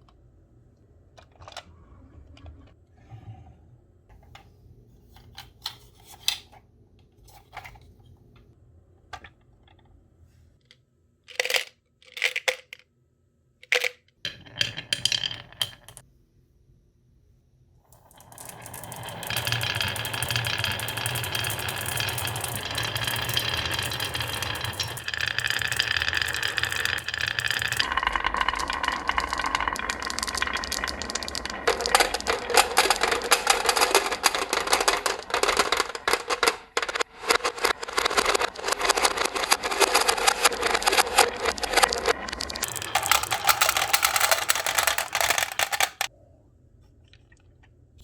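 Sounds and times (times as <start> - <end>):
marbles rolling on a marble run: 13.8 - 16.0, 18.0 - 46.1
marbles clicking against rails: 18.0 - 46.1.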